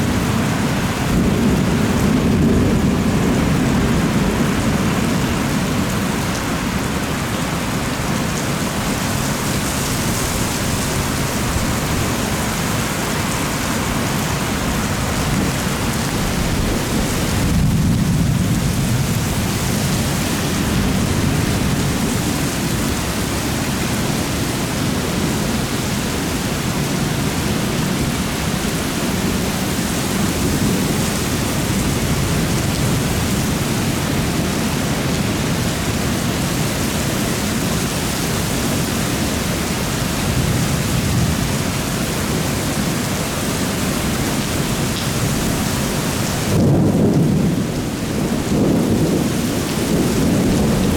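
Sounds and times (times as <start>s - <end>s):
heavy rain pouring: 0.0s - 50.9s
deep low thunder rumble: 46.4s - 50.9s.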